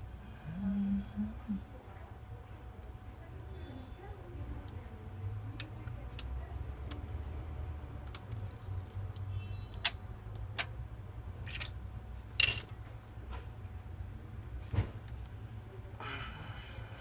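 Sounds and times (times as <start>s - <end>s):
steady low hum: 0.0s - 17.0s
clicks and taps of small parts: 5.5s - 7.0s, 8.0s - 10.7s.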